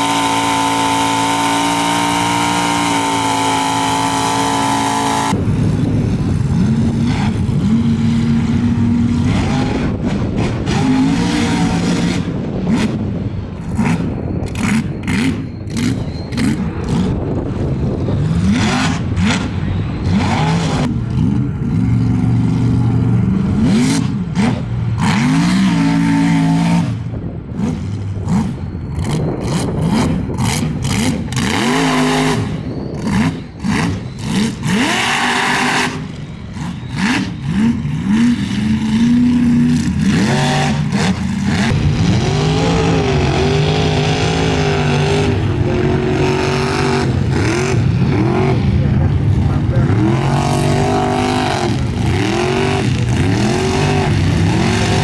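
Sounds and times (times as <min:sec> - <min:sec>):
truck engine revving: 0:00.0 - 0:55.0
bursts of rushing noise: 0:37.2 - 0:55.0.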